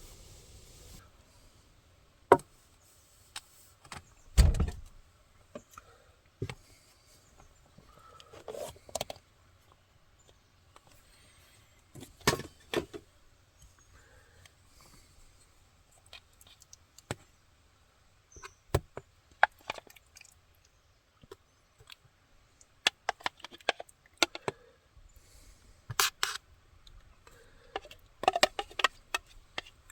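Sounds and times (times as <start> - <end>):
heavy thump: 4.4 - 4.9
objects being handled and set down: 27.7 - 29.9.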